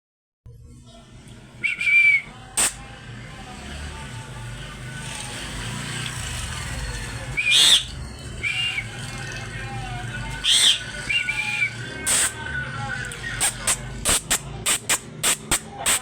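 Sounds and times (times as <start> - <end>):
parrot whistling: 1.6 - 2.7, 7.3 - 9.0, 10.4 - 12.3
sharp click: 2.6 - 2.8, 13.4 - 16.0.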